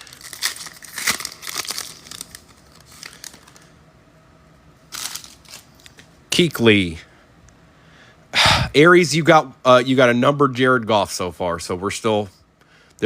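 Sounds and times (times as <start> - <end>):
foil pack tearing: 0.0 - 3.6
wrapper crinkling: 0.0 - 3.7, 4.9 - 6.1.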